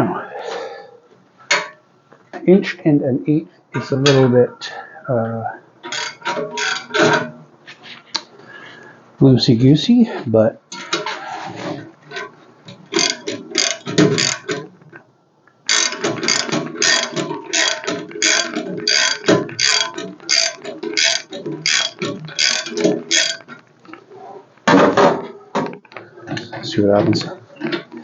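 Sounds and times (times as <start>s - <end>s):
ratchet wrench clicking: 13.0s - 14.5s, 15.7s - 23.5s.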